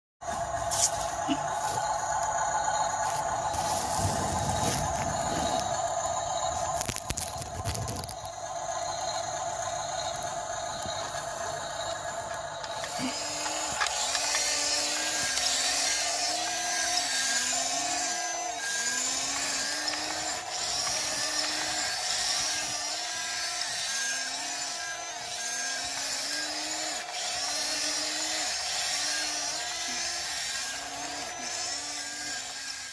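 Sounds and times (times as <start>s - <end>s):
toy bulldozer motors whining: 0.2s - 32.9s.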